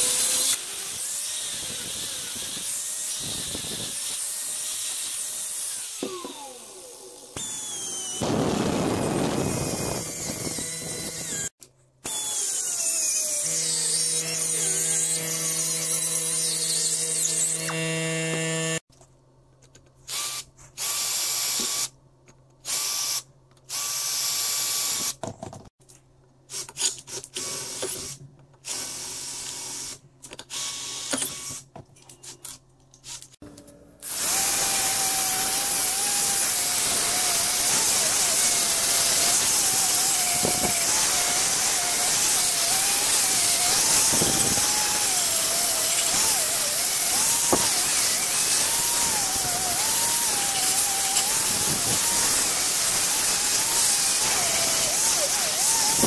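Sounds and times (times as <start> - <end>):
angle grinder on metal: 0.0 - 11.5, 12.1 - 18.8, 34.0 - 56.0
cordless drill boring into metal: 0.0 - 18.8, 34.0 - 56.0.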